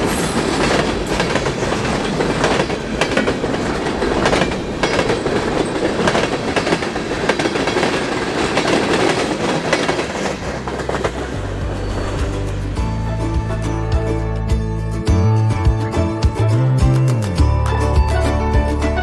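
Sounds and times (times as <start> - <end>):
wheels clicking over rail joints: 0.0 - 14.0
freight train rumble: 0.0 - 19.0
music: 10.3 - 19.0.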